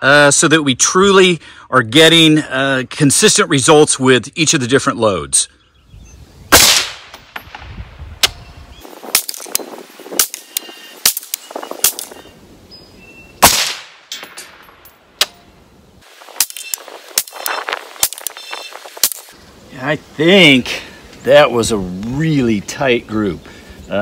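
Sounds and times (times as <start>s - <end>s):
rifle shot with echo: 6.5s - 7.7s, 13.4s - 14.4s.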